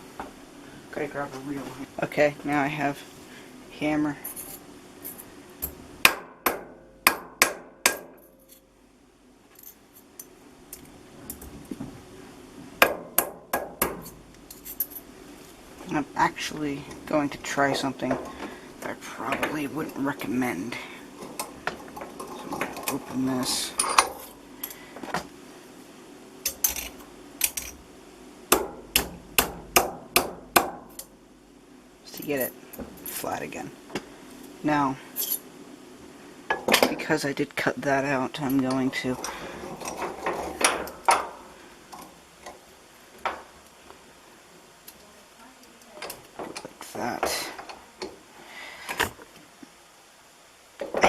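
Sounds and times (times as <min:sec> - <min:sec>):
hammer striking steel: 0:06.0 - 0:08.3, 0:28.5 - 0:30.9
hammer striking sheet steel: 0:06.1 - 0:08.2.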